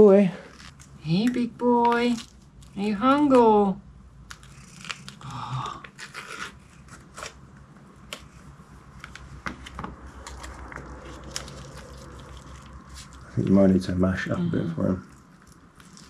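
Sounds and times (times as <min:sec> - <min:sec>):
cat chewing and lapping food: 0:10.0 - 0:14.2, 0:14.8 - 0:16.0.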